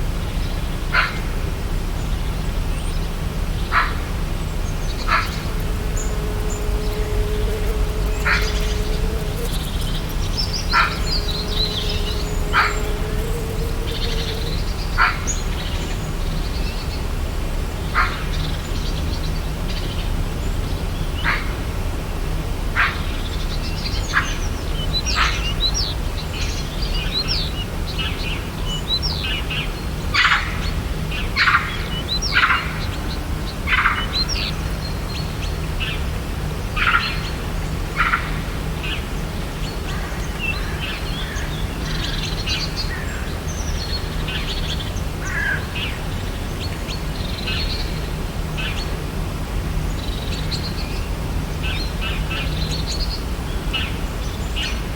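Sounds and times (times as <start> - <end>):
low background hum: 1.9 - 16.9
birds calling and chirping: 4.5 - 15.4.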